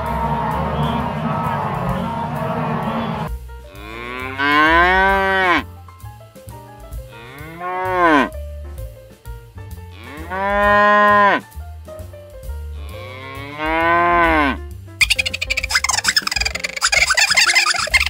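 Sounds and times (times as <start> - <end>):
soft background music: 0.0 - 18.0
animal calling in sliding calls: 15.0 - 18.0.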